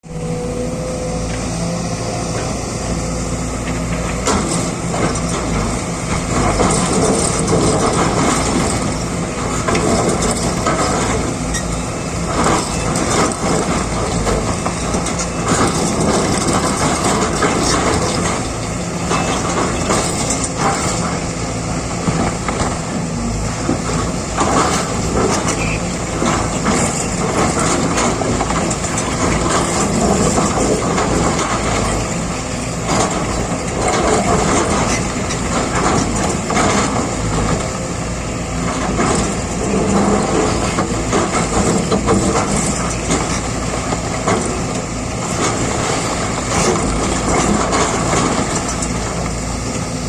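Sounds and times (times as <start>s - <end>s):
excavator diesel engine running: 0.0s - 50.0s
bucket scraping and grinding ground: 15.8s - 34.7s.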